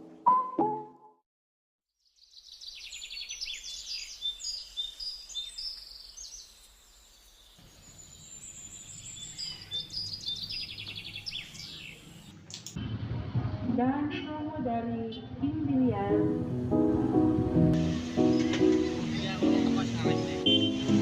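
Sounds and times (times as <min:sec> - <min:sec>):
small birds chirping and trilling: 0:02.0 - 0:12.4.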